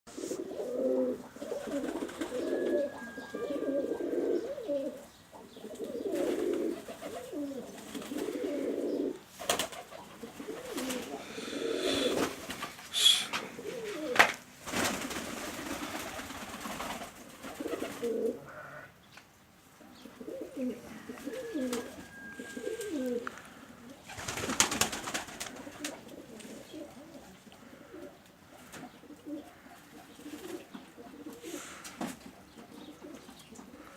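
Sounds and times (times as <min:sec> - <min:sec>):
doves cooing: 0:00.1 - 0:18.9, 0:19.8 - 0:33.9.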